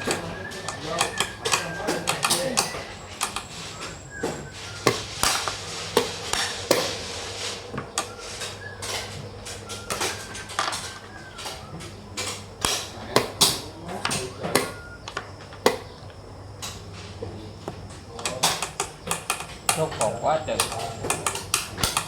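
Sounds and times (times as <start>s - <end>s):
game pieces clacking on board: 0.0s - 3.6s, 18.2s - 22.0s
steady low hum: 0.0s - 22.0s.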